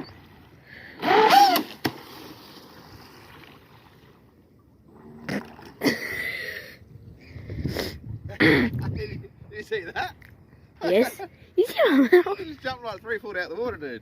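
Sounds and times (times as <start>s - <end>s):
boat slapping on water: 1.0s - 4.3s.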